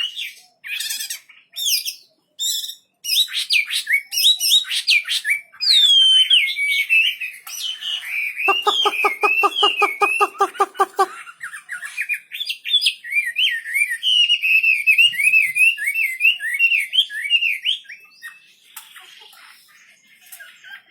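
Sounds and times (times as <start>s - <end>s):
bird singing: 8.5s - 11.1s.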